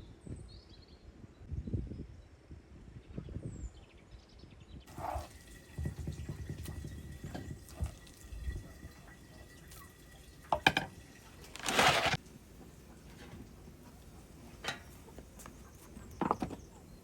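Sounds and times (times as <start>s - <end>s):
water dripping and splashing: 4.9s - 12.2s.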